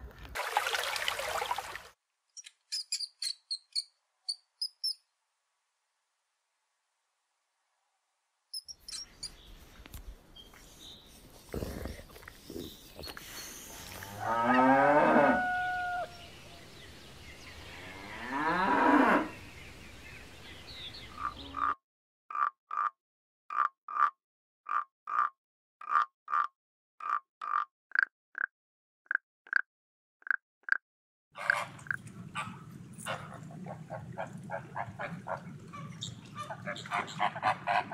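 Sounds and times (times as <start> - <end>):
long low animal calls: 11.5 - 16.2.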